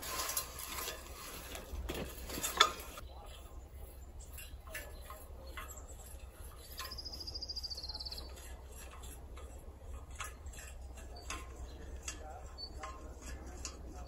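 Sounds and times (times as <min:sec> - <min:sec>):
songbird trill: 0:03.0 - 0:08.6.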